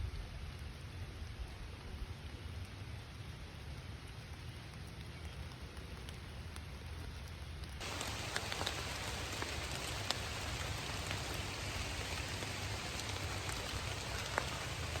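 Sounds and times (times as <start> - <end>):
rain hissing: 7.8 - 15.0
water drips: 7.8 - 15.0.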